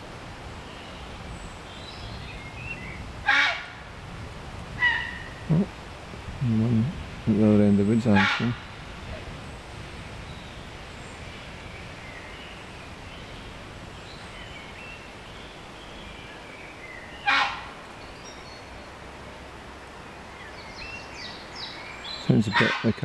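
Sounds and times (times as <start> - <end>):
faint small birds singing: 0.0 - 3.1, 6.4 - 23.0
heron squawk: 4.8 - 5.4, 8.2 - 8.6.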